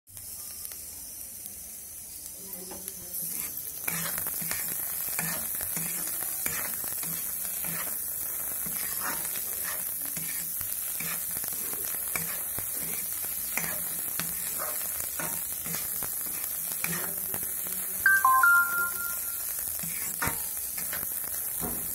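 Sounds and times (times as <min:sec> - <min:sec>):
food sizzling in oil: 0:00.1 - 0:21.9
metal spatula scraping: 0:03.1 - 0:17.4, 0:19.2 - 0:21.6.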